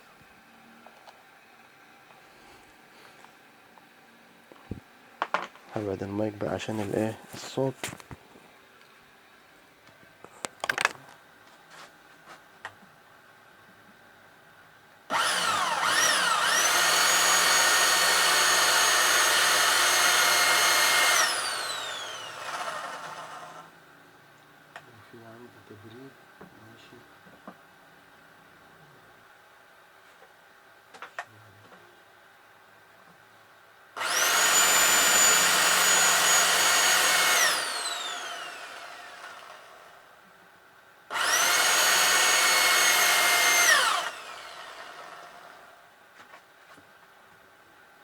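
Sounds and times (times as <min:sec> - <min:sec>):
electric drill whining: 0:15.1 - 0:23.7, 0:34.0 - 0:40.0, 0:41.1 - 0:45.7.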